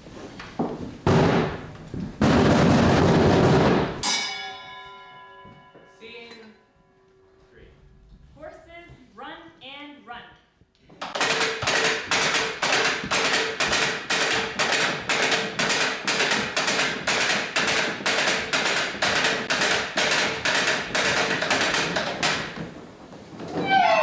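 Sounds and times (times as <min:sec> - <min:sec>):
percussion strikes ringing: 0:04.0 - 0:07.4, 0:11.1 - 0:22.6.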